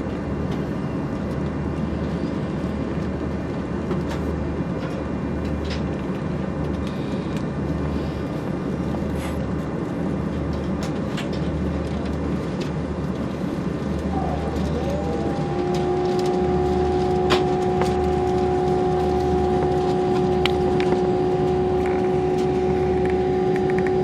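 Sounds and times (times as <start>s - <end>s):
aircraft cabin rumble and hum: 0.0s - 24.0s
low throb: 14.1s - 24.0s.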